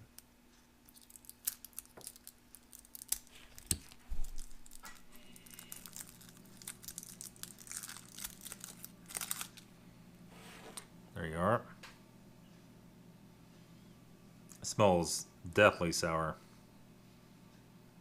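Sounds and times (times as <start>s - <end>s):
plastic wrapper crinkling: 0.9s - 9.7s.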